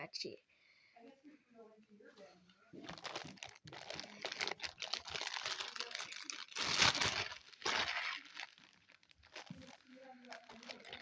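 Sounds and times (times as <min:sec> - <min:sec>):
slime crinkling and crackling: 0:02.8 - 0:11.0.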